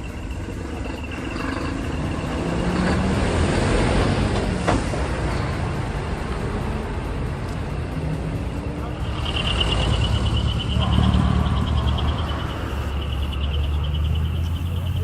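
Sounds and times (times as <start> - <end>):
truck engine passing: 0.0 - 15.0.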